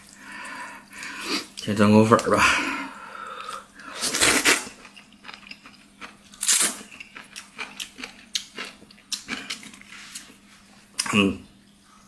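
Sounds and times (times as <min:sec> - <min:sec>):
person slurping noodles: 0:03.4 - 0:04.8
person chewing with mouth clicks: 0:04.1 - 0:10.3.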